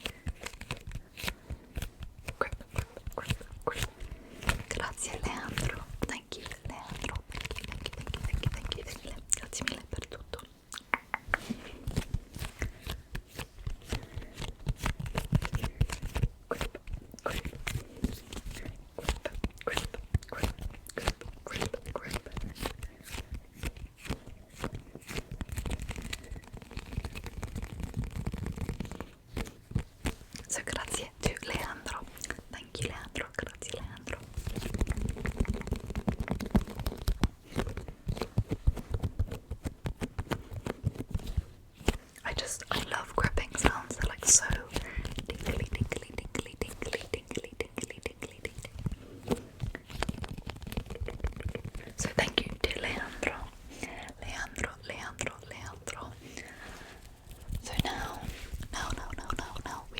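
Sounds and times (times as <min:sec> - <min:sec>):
hands squeezing and rubbing microphone: 0:00.0 - 0:59.9
hands gripping an object: 0:48.4 - 0:52.1.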